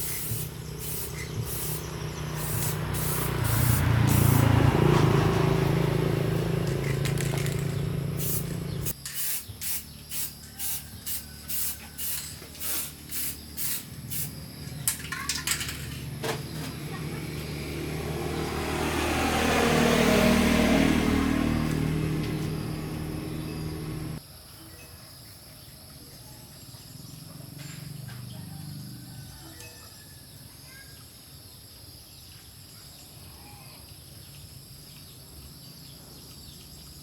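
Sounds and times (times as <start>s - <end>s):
short spray hisses: 0.0s - 4.5s, 8.2s - 14.4s
long spray hiss: 0.0s - 4.6s, 8.1s - 14.4s.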